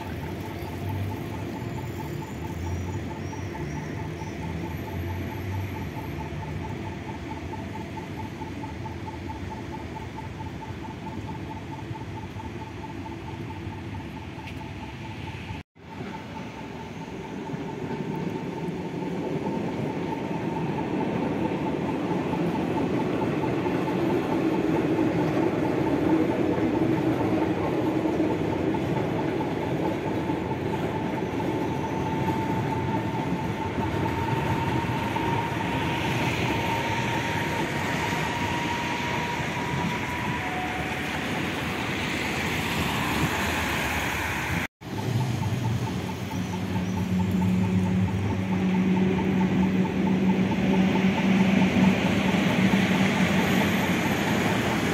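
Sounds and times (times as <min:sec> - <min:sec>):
steady high whine: 0:00.0 - 0:54.9
train rumbling over viaduct: 0:00.0 - 0:54.9.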